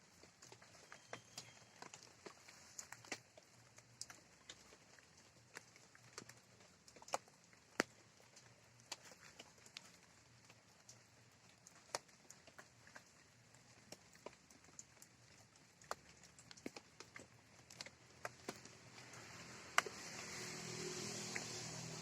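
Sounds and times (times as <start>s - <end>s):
raindrops ticking and tapping: 0.0s - 22.0s
soft rain hiss: 0.0s - 22.0s.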